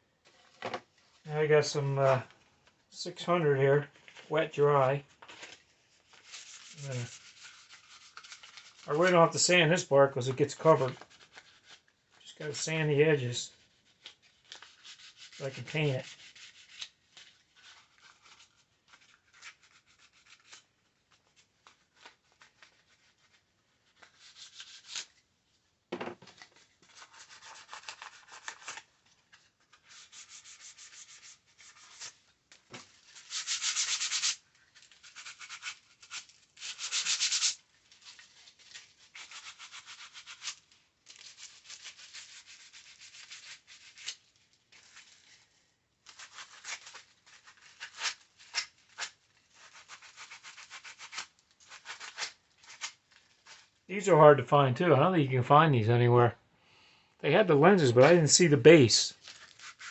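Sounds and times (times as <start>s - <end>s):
sandpaper rubbing strokes: 6.2s - 8.9s, 14.6s - 16.8s, 29.9s - 32.1s, 33.1s - 34.4s, 35.0s - 37.6s.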